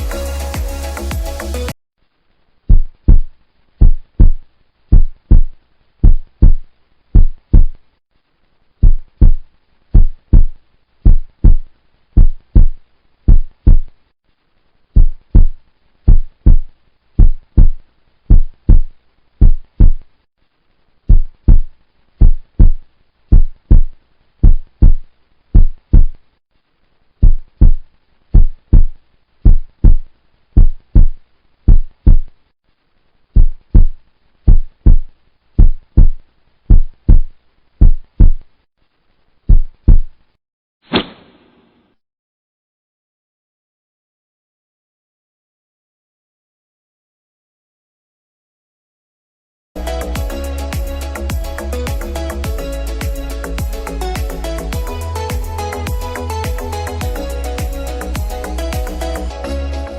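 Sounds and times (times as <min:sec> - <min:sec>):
deep heartbeat-like double thumps: 0:02.7 - 0:06.6, 0:07.2 - 0:07.8, 0:08.8 - 0:13.9, 0:15.0 - 0:20.0, 0:21.1 - 0:25.0, 0:25.6 - 0:26.2, 0:27.2 - 0:32.3, 0:33.4 - 0:38.4, 0:39.5 - 0:40.1.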